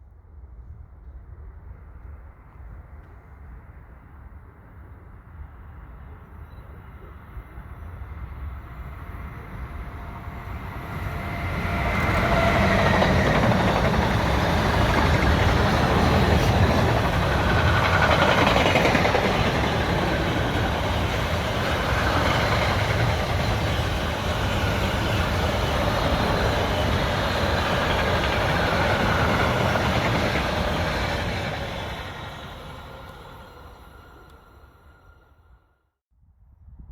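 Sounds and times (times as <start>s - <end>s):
train wheels rumbling on rails: 8.0s - 35.2s.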